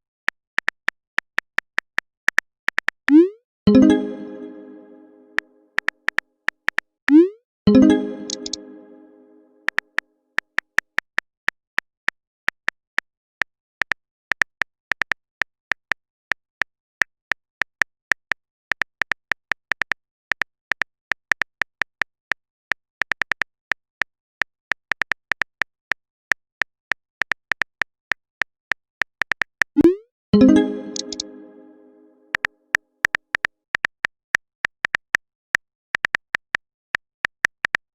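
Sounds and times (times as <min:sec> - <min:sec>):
phone keyboard typing clicks: 0:07.8 - 0:08.7, 0:30.6 - 0:31.4.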